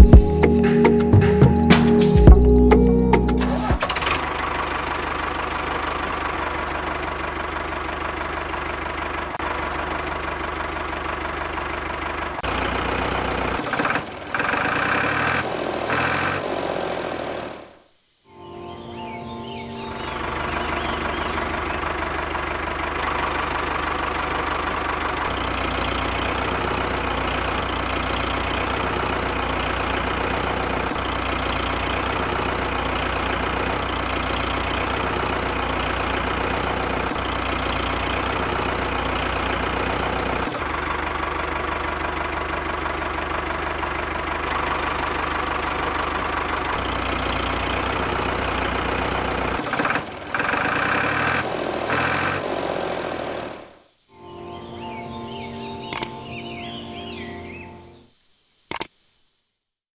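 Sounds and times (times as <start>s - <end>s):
small diesel engine knocking: 3.9s - 16.3s, 21.6s - 52.5s.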